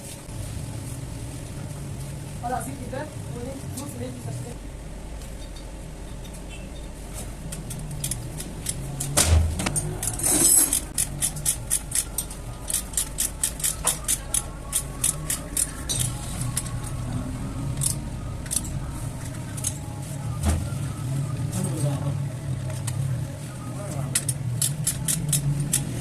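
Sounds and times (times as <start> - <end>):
metal scrape: 9.6 - 11.6.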